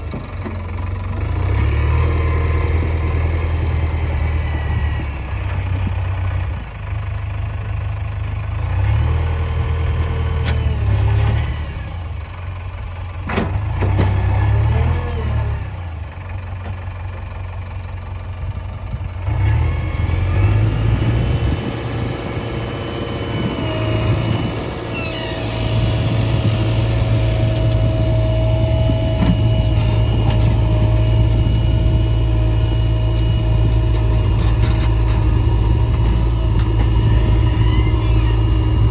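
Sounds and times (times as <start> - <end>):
diesel engine running: 0.0 - 38.9
high whine: 20.6 - 38.9.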